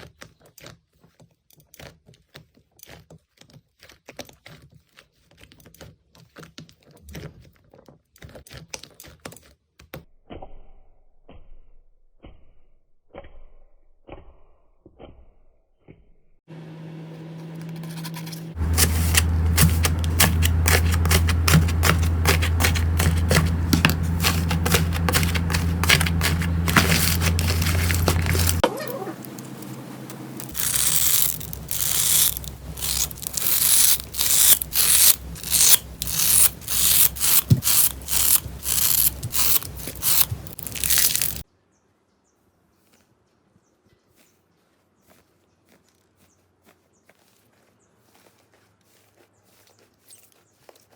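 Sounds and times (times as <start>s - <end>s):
slime crackling and squishing: 18.6s - 29.8s, 30.4s - 41.4s.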